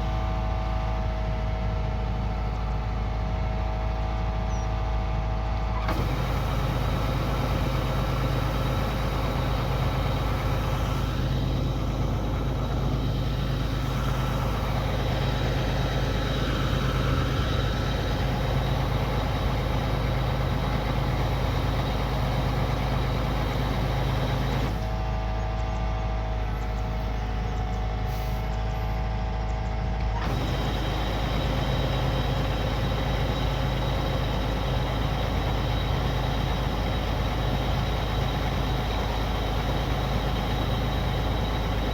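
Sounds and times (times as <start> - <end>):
combine harvester engine drone: 0.0 - 41.9
threshing machinery whirr: 5.8 - 25.5, 29.9 - 41.9.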